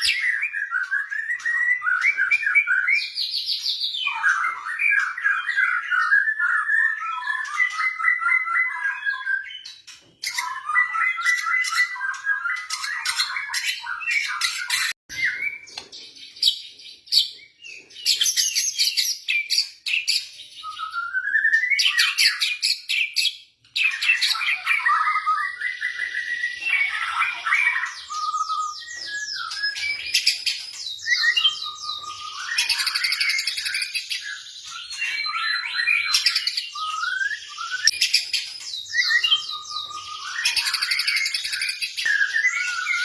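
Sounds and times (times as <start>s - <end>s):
rising bird whistle: 23.9s - 43.0s.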